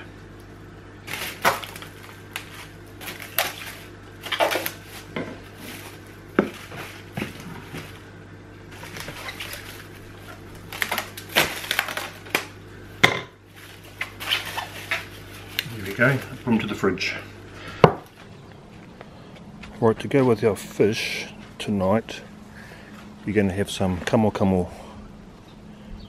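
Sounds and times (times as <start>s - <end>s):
steady low hum: 0.0s - 26.0s
cling film crackling and rustling: 1.0s - 12.6s, 13.5s - 16.9s.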